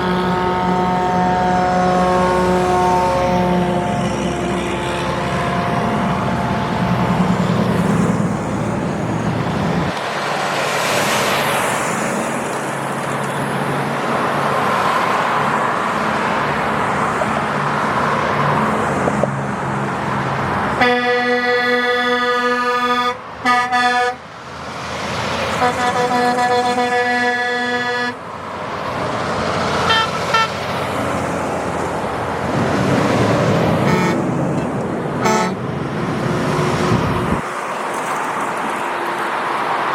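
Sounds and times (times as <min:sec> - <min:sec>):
long truck horn blast: 0:00.0 - 0:07.5, 0:20.8 - 0:24.3, 0:25.5 - 0:28.2, 0:29.8 - 0:30.8, 0:33.8 - 0:34.3, 0:35.2 - 0:35.7
trucks passing: 0:00.0 - 0:39.9
short horn toots: 0:35.2 - 0:35.6.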